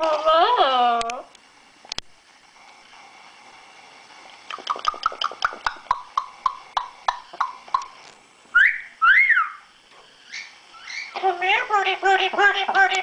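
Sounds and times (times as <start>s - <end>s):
parrot clicking: 4.5s - 8.0s
parrot whistled calls: 8.5s - 9.7s, 10.3s - 11.2s.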